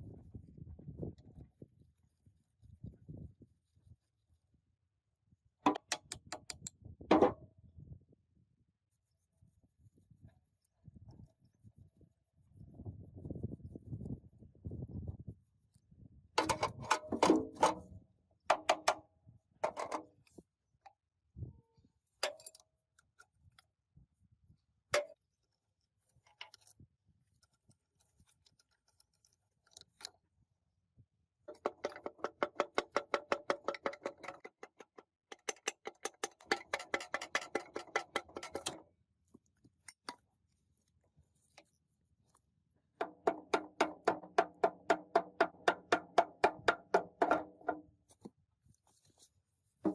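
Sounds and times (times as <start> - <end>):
clinks and knocks: 16.4 - 17.9, 18.5 - 19.0, 19.6 - 20.1, 22.2 - 22.7, 31.5 - 38.8
rapid tapping on metal: 31.5 - 38.8, 43.0 - 47.8.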